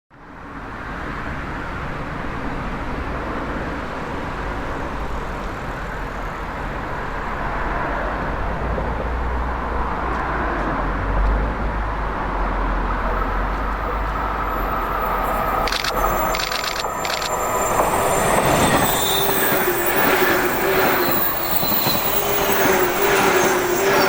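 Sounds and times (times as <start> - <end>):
train wheels rumbling on rail: 1.4 - 24.0.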